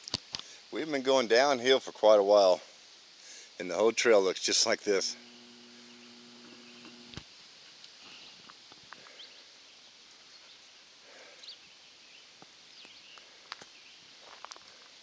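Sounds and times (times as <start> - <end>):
faint outdoor hiss: 0.0 - 15.0
footsteps on rocky trail: 13.6 - 14.9.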